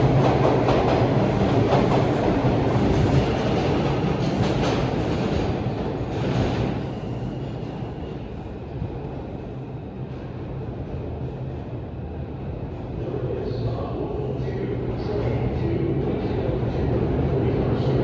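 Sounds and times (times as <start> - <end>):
subway train rumbling on track: 0.0 - 18.0.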